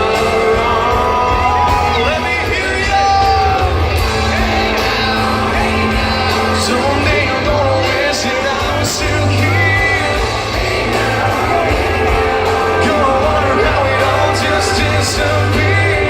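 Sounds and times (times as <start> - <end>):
band music playing: 0.0 - 16.0
voices shouting: 0.0 - 16.0.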